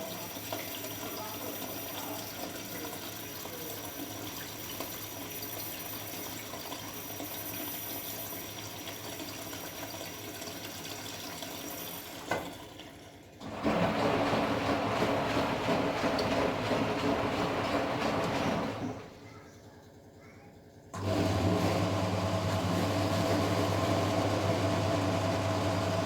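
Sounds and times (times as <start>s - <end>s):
water filling washing machine: 0.0s - 26.0s
washing machine drum tumbling: 13.4s - 19.2s.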